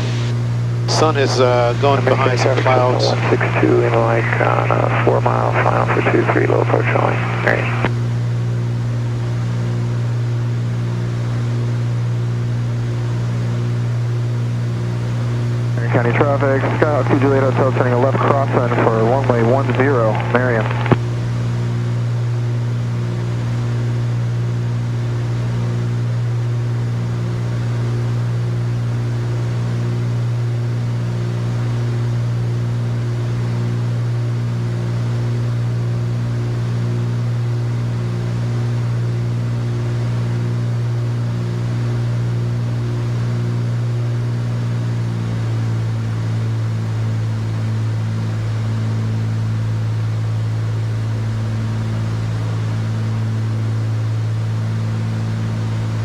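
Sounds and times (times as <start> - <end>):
propeller plane engines droning: 0.0 - 56.0.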